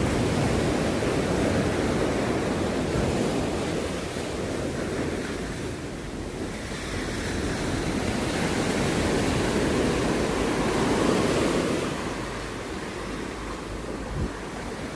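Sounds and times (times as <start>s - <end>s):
sea waves washing onto beach: 0.0s - 14.9s
wind on microphone: 0.0s - 14.9s.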